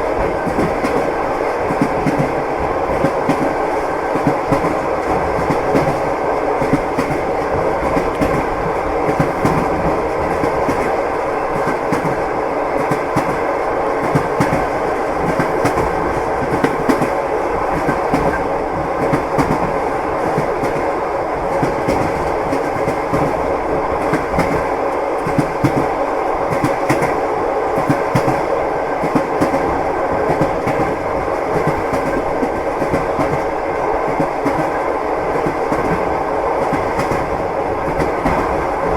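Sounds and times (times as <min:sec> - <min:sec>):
train running noise: 0:00.0 - 0:38.9.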